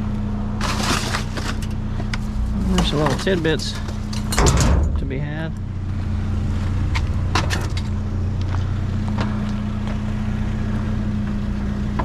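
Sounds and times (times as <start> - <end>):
vehicle engine idling: 0.0 - 12.0
scrap metal clattering: 0.6 - 5.2.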